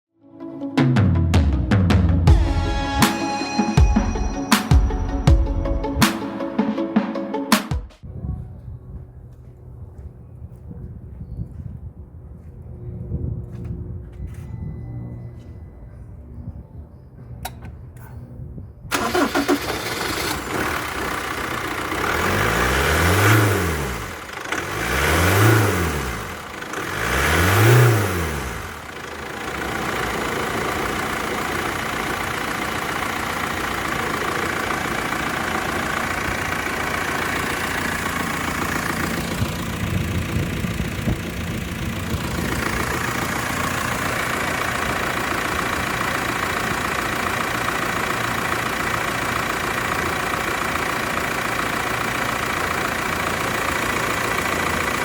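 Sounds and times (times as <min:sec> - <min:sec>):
engine cranking and starting: 0:18.9 - 0:55.0
engine revving and idling: 0:18.9 - 0:55.0.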